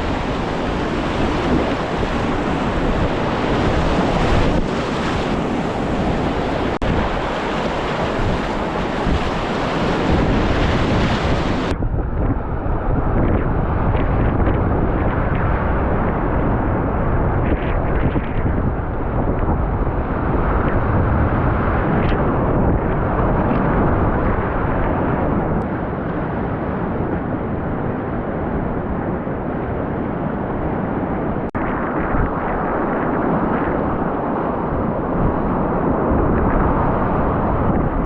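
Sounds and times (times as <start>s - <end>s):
rushing river whitewater: 0.0s - 11.7s
wind buffeting microphone: 0.0s - 38.0s.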